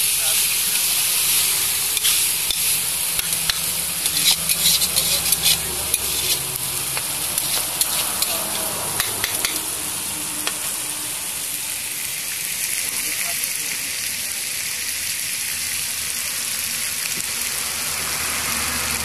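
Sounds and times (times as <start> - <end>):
chicken sizzling in pan: 0.0 - 19.0
spatula scraping metal pan: 0.7 - 10.9.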